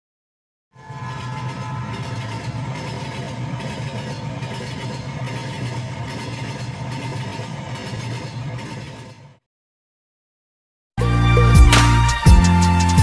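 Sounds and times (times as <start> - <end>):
constant hum: 0.8 - 9.3
train engine rumble: 0.8 - 9.4.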